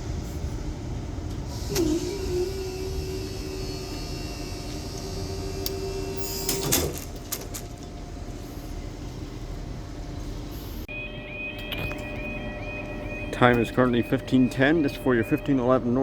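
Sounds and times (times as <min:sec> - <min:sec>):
steady whine: 0:00.0 - 0:16.0
train low rumble: 0:00.0 - 0:16.0.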